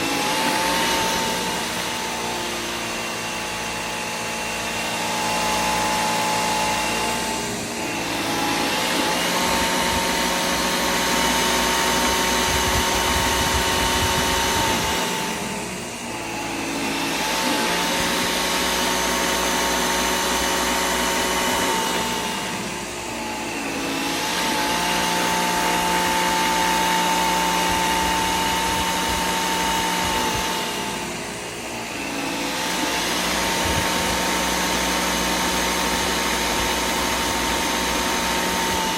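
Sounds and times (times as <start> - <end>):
vacuum cleaner motor whine: 0.0 - 38.9.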